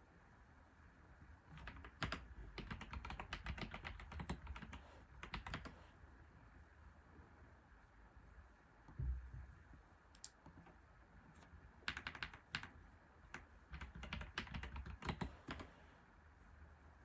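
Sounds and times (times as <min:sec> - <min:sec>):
keyboard typing: 0:01.5 - 0:05.8, 0:11.8 - 0:15.7.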